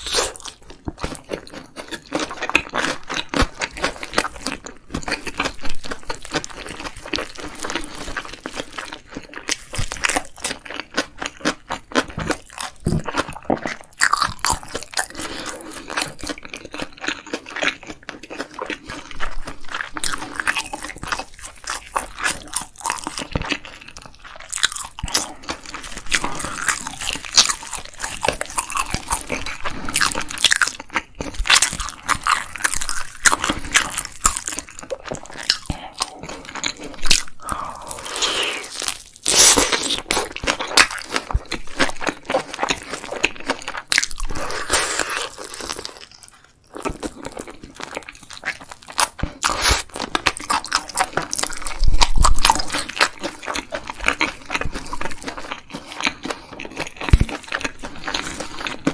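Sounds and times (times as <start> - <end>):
person chewing crunchy food: 0.0 - 58.9.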